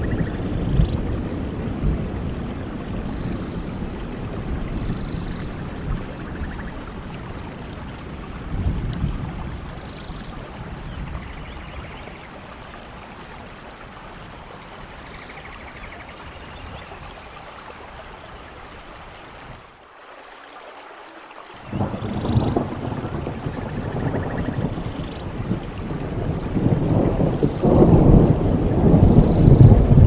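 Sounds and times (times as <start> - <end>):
thunder rumbling: 0.0 - 12.2, 21.7 - 30.0
steady rain: 0.0 - 30.0.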